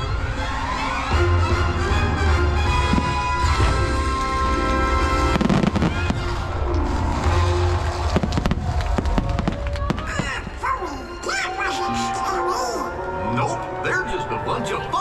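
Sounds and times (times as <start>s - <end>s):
fireworks bangs: 2.6s - 10.6s.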